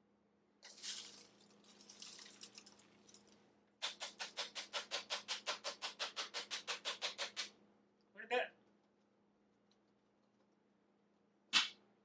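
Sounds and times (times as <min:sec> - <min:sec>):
debris pouring from dust cup: 0:00.7 - 0:02.7.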